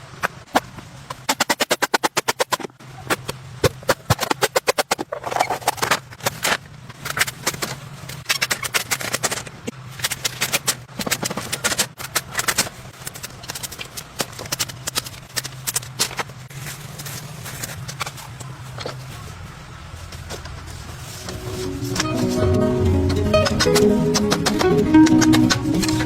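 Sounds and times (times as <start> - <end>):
low hum: 19.4 - 26.0.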